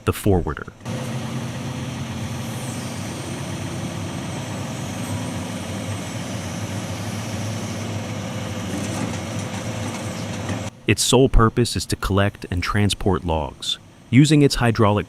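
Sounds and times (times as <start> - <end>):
diesel engine running: 0.8 - 10.9.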